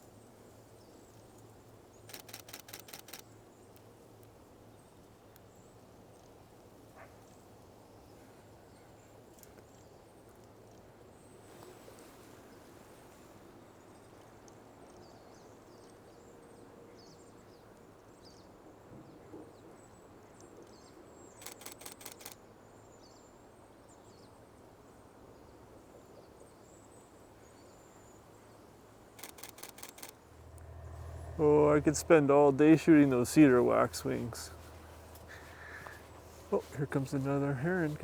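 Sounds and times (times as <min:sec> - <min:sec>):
camera shutter clicks: 0:02.1 - 0:03.2, 0:21.4 - 0:22.4, 0:29.2 - 0:30.8.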